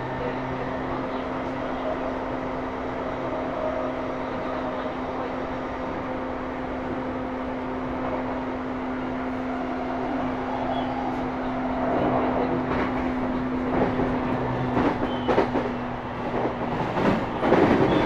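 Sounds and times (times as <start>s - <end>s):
wheel and rail noise: 0.0s - 18.0s.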